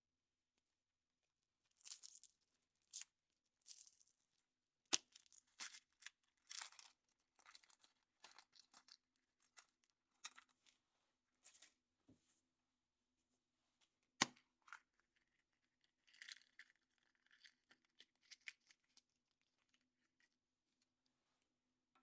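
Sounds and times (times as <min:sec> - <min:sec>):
chocolate egg cracking: 0:04.9 - 0:07.0, 0:14.2 - 0:20.4.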